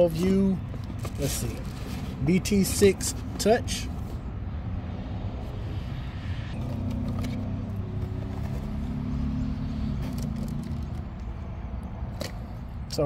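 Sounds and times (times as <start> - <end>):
cables and packaging rustling: 0.0 - 4.2, 6.6 - 9.0, 9.9 - 11.4
vehicle engine humming: 0.0 - 13.0.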